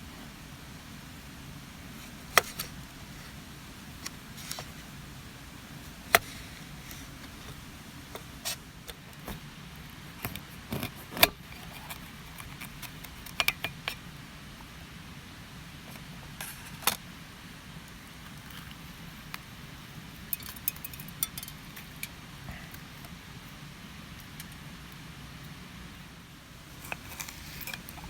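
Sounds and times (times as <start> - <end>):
metallic clinks of camp cookware: 20.3 - 22.2.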